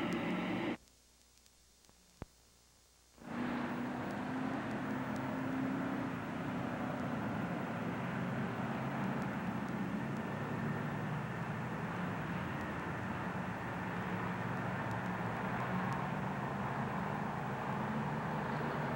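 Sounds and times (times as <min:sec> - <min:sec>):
vehicle engine noise: 0:00.0 - 0:00.8, 0:03.2 - 0:18.9
constant hiss: 0:00.0 - 0:06.3.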